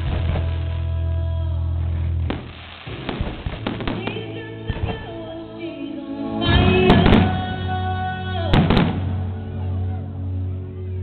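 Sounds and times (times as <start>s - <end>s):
firework bangs: 0.0s - 0.9s, 2.1s - 5.2s, 8.5s - 9.2s
music with long held chords: 0.0s - 11.0s.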